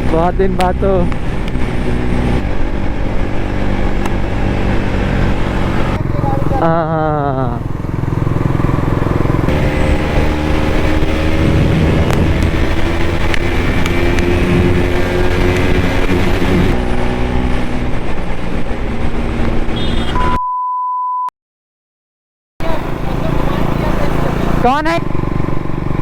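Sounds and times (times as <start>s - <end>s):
motorcycle engine running: 0.0s - 16.9s, 17.5s - 20.2s, 22.6s - 26.0s
wind on microphone: 9.0s - 19.6s
steady bleep tone: 19.8s - 21.3s.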